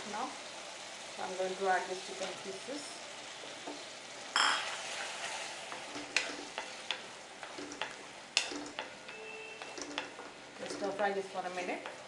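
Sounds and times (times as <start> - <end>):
chicken sizzling in pan: 0.0 - 12.0
spatula knocking pan: 5.7 - 12.0.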